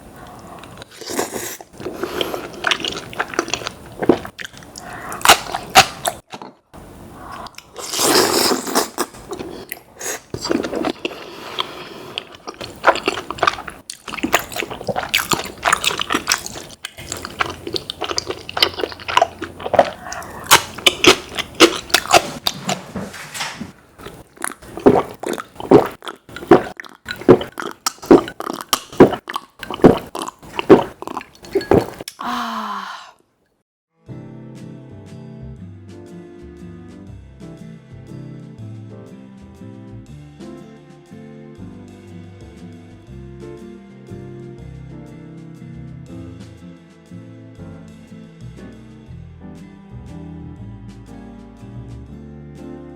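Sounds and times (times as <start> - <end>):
person chewing food: 0.0 - 6.6, 7.2 - 22.8, 24.0 - 32.3
wet mouth clicks and smacks: 24.0 - 32.3.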